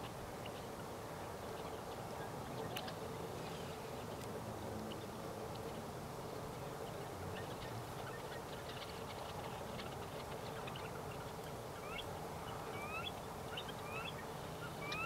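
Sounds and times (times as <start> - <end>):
low background noise: 0.0 - 15.0
short high bird calls: 12.8 - 15.0.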